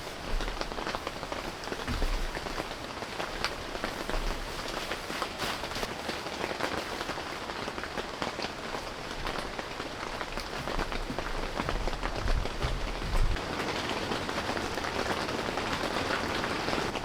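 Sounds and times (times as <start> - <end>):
raindrops striking a surface: 0.0 - 17.0
steady rain: 0.0 - 17.0.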